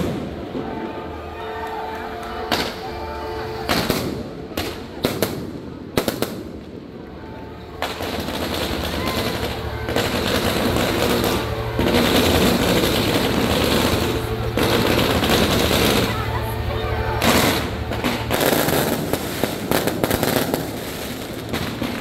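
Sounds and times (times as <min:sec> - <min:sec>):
fireworks bangs: 0:00.0 - 0:07.0, 0:07.7 - 0:22.0
fireworks crackling and hiss: 0:07.8 - 0:22.0.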